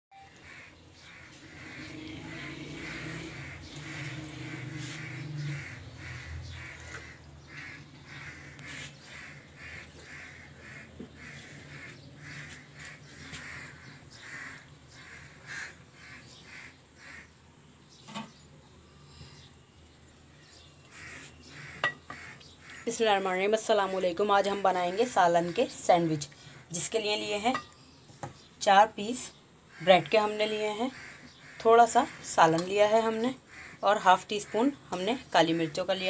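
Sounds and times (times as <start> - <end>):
bird harsh calls: 0.2 - 17.4, 20.5 - 22.9, 33.4 - 33.8.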